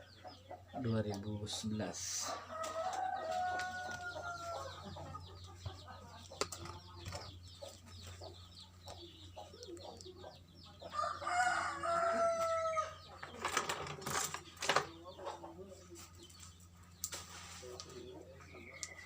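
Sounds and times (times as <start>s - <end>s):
rooster crowing: 2.4s - 4.9s, 10.9s - 13.0s.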